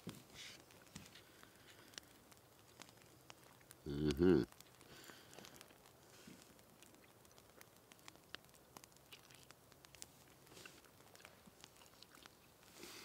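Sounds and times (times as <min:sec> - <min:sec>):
person chewing food: 0:00.8 - 0:08.2, 0:08.8 - 0:13.0.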